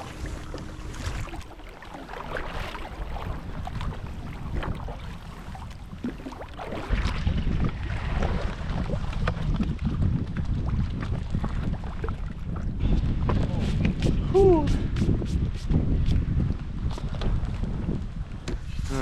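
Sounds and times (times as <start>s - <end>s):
water splashing and lapping: 0.0s - 14.2s
wind buffeting microphone: 0.0s - 19.0s.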